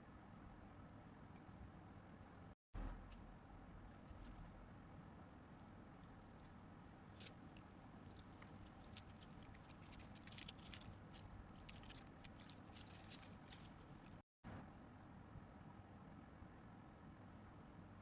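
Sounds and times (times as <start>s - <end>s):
low background hum: 0.0s - 18.0s
small mammals ticking and scratching: 5.6s - 14.2s.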